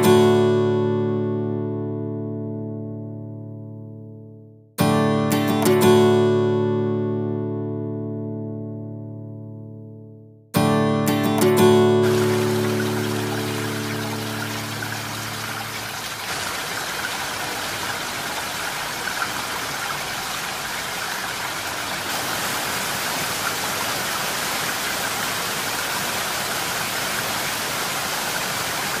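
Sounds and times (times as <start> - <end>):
guitar music: 0.0 - 16.3
waterfall rushing: 11.2 - 29.0.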